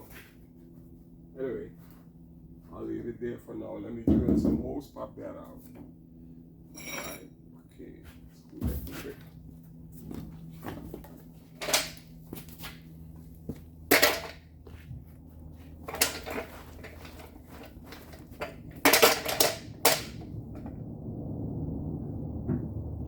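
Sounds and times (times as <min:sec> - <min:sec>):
metal tools clattering: 0:06.7 - 0:07.3, 0:11.6 - 0:12.0, 0:13.9 - 0:14.4, 0:15.8 - 0:20.1.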